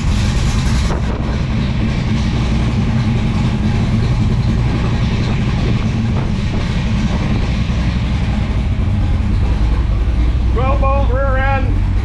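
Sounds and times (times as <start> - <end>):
vee eight engine idling: 0.0 - 12.0.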